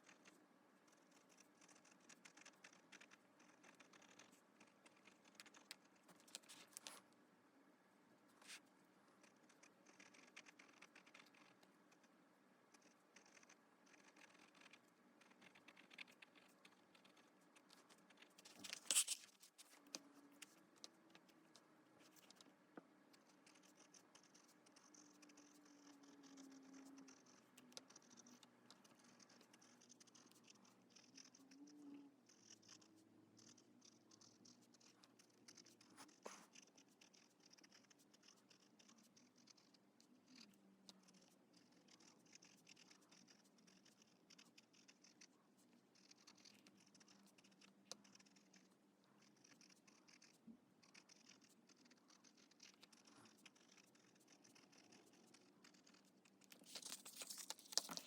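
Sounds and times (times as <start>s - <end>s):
pen stroke ticks: 0.0s - 7.0s, 9.2s - 12.1s, 12.7s - 58.0s
pen nib scratching on paper: 0.0s - 7.1s, 8.2s - 58.0s.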